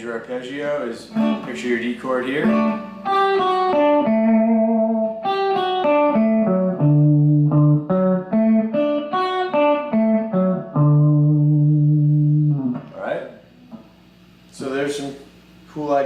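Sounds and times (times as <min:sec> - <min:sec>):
electric guitar country lick: 0:01.0 - 0:13.0.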